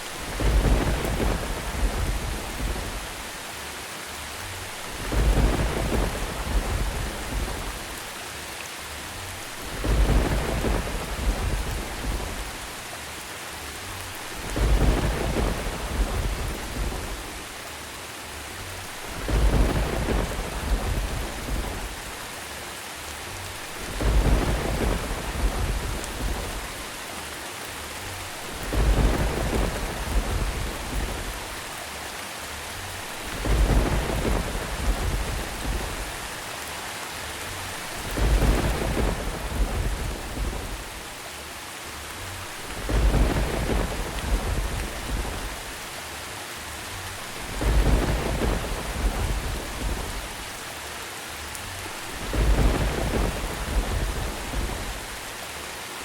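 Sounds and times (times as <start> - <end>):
thunder rumbling: 0.0 - 3.4, 4.5 - 8.1, 9.3 - 12.8, 14.0 - 17.6, 18.8 - 22.3, 23.4 - 27.0, 28.1 - 31.7, 32.9 - 36.5, 37.4 - 41.2, 42.4 - 46.0, 47.0 - 50.7, 51.7 - 55.4
steady rain: 0.0 - 56.0.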